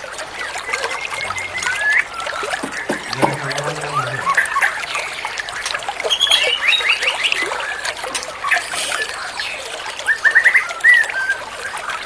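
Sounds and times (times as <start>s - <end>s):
water trickling: 0.0s - 12.0s
bird singing whistled notes: 0.4s - 11.8s.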